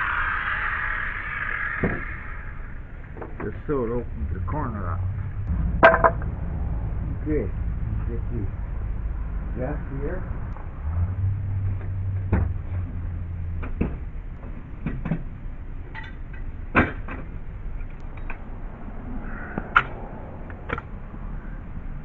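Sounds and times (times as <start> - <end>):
low steady hum: 0.0 - 22.0
objects knocked and set down: 5.8 - 6.2.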